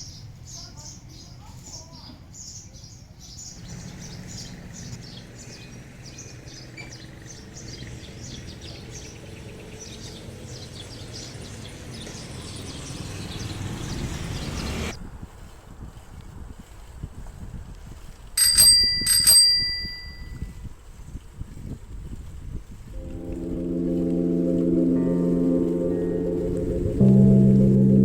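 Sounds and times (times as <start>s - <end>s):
small birds chirping: 0.0s - 14.9s
low rumbling noise: 23.0s - 28.0s.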